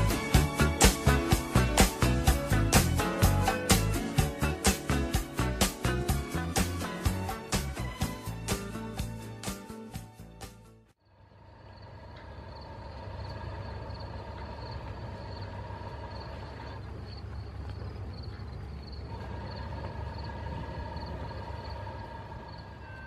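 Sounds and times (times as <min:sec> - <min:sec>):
distant diesel locomotive rumble: 0:11.0 - 0:23.0.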